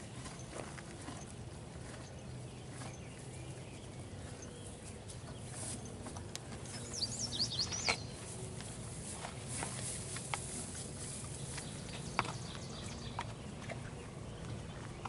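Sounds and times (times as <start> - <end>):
horses rustling hay: 0.0 - 14.2
outdoor background noise: 0.0 - 15.0
small bird chirping: 6.7 - 8.2.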